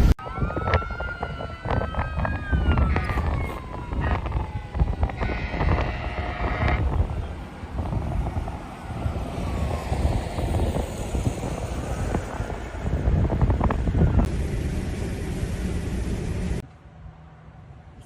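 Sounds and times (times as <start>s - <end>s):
wind buffeting microphone: 0.0s - 14.4s.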